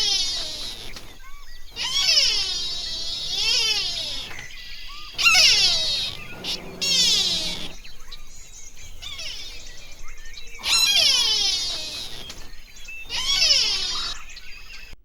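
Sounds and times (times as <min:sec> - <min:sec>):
high-pitched animal calls: 0:01.8 - 0:07.8, 0:10.6 - 0:14.8.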